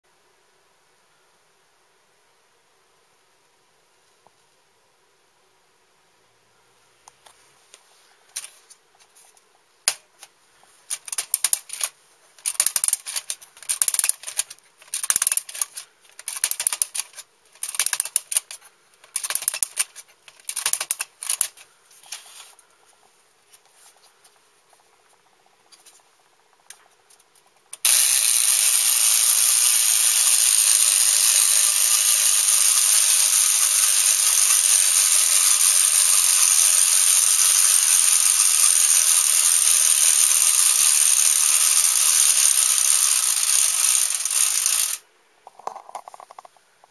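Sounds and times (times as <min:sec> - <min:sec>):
toy whirring rattle: 0:08.3 - 0:08.6, 0:09.9 - 0:23.0, 0:25.1 - 0:46.5
tin toy ratchet clicks: 0:10.9 - 0:22.4, 0:27.7 - 0:45.0.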